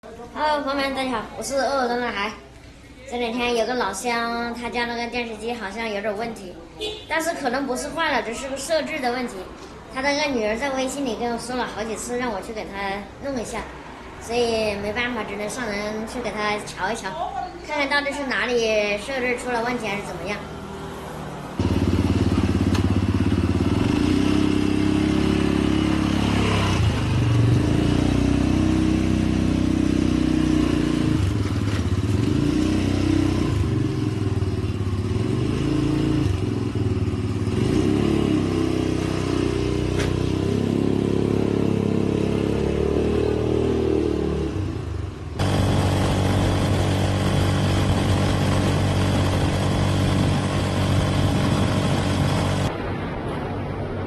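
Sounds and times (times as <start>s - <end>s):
motor tricycle engine running: 21.6s - 32.3s, 44.9s - 52.7s.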